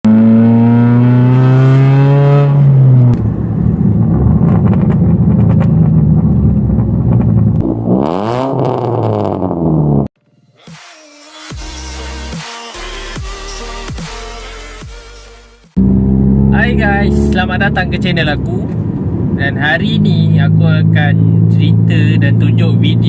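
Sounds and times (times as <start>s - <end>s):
car engine revving: 0.0s - 10.2s, 15.6s - 23.0s.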